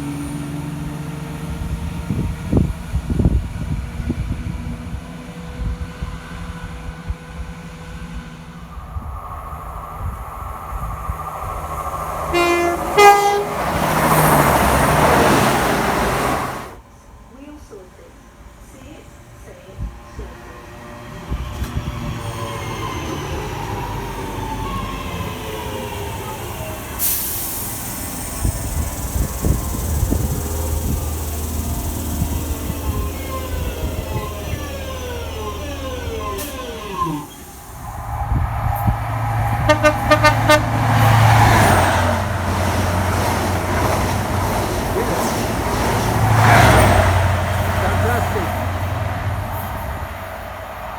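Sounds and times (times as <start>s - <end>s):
train rumbling past: 0.0s - 50.9s
diesel engine humming: 8.5s - 16.8s, 26.6s - 50.8s
faint falling tones: 8.6s - 13.7s
train horn toots: 11.7s - 16.7s, 37.9s - 42.2s
loud hiss: 26.7s - 34.9s.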